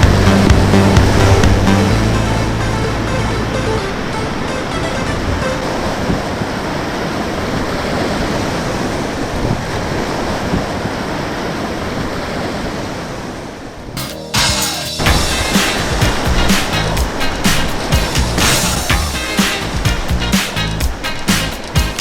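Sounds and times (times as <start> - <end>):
music: 0.0 - 5.9, 14.0 - 22.0.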